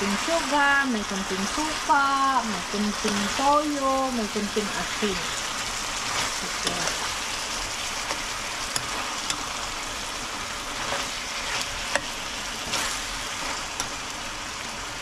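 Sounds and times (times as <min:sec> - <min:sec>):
food sizzling in a frying pan: 0:00.0 - 0:15.0
utensil clicking against pan: 0:08.0 - 0:09.5, 0:10.9 - 0:12.8, 0:13.8 - 0:14.0.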